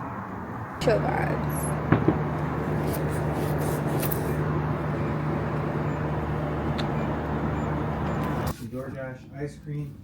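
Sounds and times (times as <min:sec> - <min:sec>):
low mechanical hum: 0:00.8 - 0:08.6.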